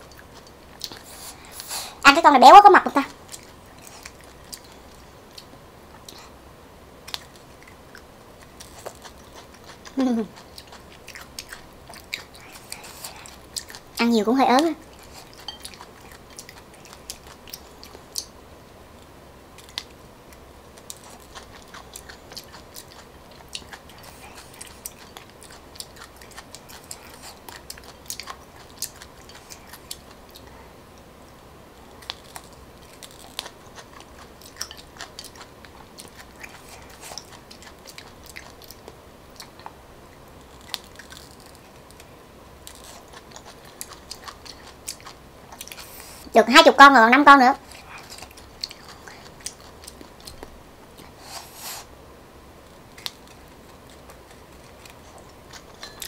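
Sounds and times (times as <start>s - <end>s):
chewing and biting grubs: 20.8s - 30.5s, 42.7s - 46.3s, 47.6s - 51.1s.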